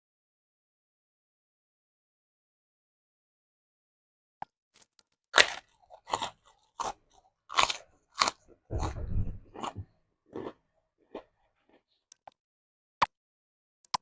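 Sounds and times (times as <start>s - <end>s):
person chewing crunchy food: 4.8s - 12.3s.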